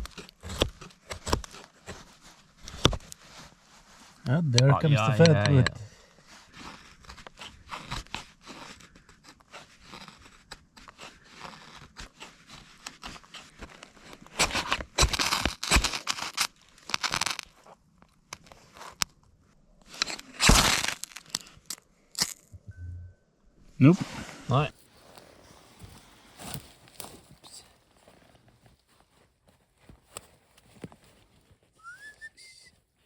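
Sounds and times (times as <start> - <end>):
wood splintering: 0.0 - 2.0, 7.1 - 17.4, 20.0 - 21.5
wood crunching and cracking: 0.0 - 3.1, 6.8 - 19.1, 19.8 - 22.5.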